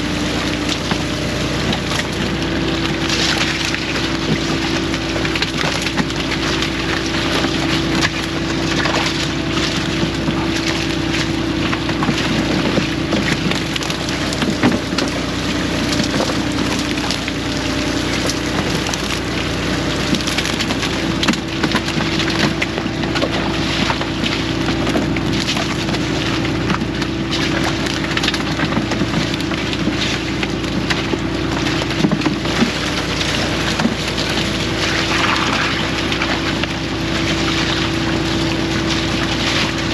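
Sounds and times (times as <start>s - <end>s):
boat engine low hum: 0.0s - 39.9s
crackle of small clicks and knocks: 3.1s - 15.2s, 20.0s - 36.8s.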